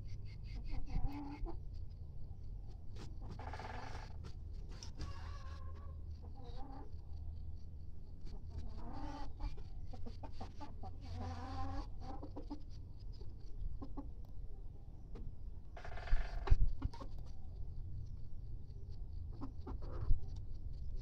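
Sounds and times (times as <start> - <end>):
chickens clucking: 0.1 - 21.0
steady low hum: 5.7 - 21.0.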